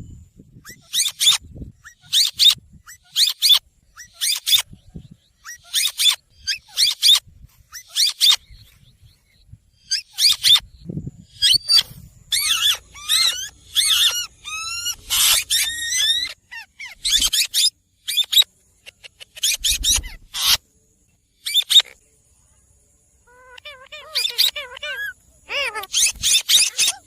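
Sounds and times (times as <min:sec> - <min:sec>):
parakeet squawking: 0:11.5 - 0:18.3, 0:23.3 - 0:27.0.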